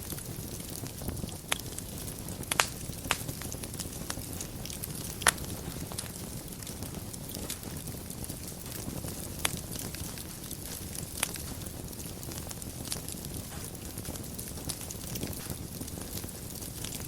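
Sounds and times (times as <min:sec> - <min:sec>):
low rumble of fire: 0:00.0 - 0:17.0
wood fire crackling: 0:00.0 - 0:17.0.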